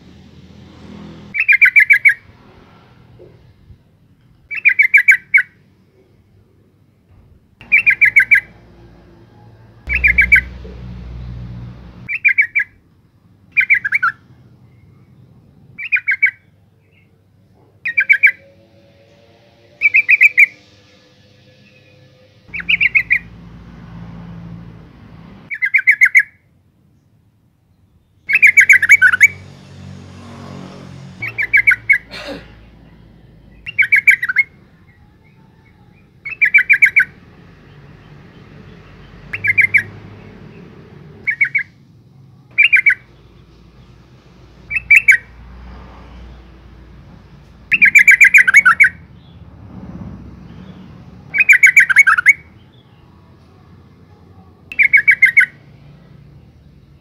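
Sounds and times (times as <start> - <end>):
bird harsh chattering calls: 7.6 - 8.6, 9.9 - 10.6, 31.2 - 32.4, 41.2 - 41.8, 42.5 - 43.2, 47.7 - 49.3, 50.5 - 52.9, 54.7 - 55.5
faint low rumble: 8.4 - 12.1.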